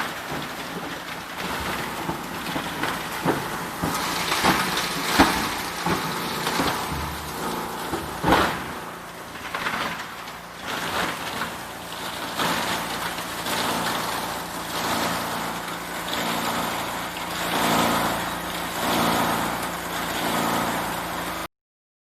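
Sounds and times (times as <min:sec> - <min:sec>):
plastic cracking and crunching: 0:00.0 - 0:13.5
granulator machine running: 0:00.0 - 0:21.5.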